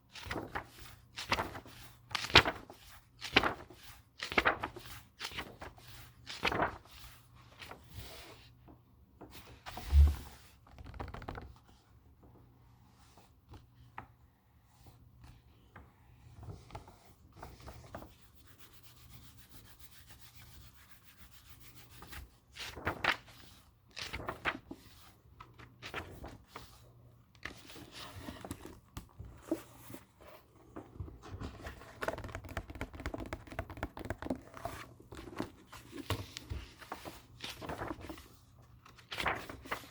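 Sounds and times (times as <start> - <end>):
pages rustling: 0.1 - 8.3, 22.0 - 39.9
hands rubbing over paper: 6.5 - 6.7, 39.2 - 39.4.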